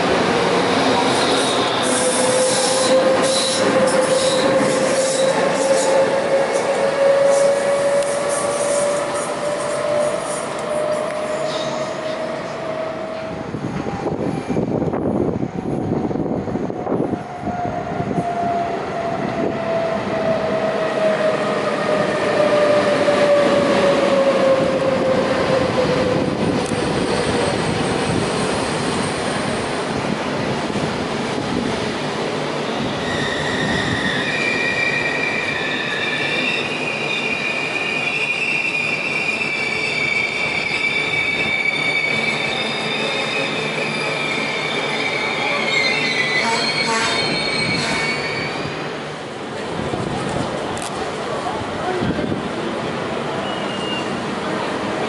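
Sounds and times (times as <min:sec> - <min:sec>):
electric locomotive whine: 0:00.0 - 0:55.0
brake squeals: 0:33.0 - 0:48.7, 0:53.4 - 0:54.2.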